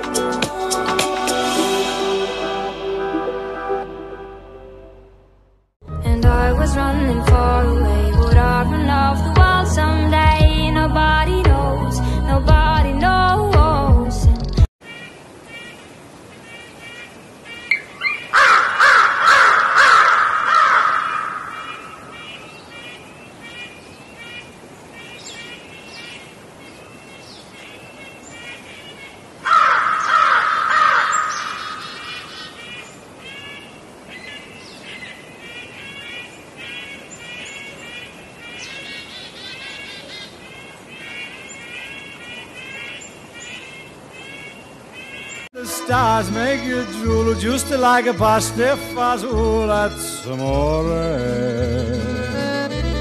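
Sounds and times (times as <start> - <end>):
harsh rapid bird calls: 16.4 - 45.5
many birds chittering: 17.5 - 45.5.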